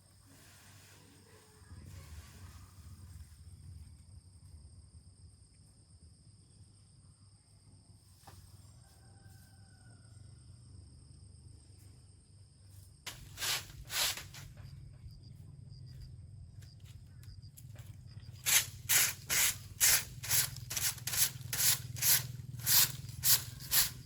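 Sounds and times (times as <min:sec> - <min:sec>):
high insect-like whine: 0:11.7 - 0:24.0.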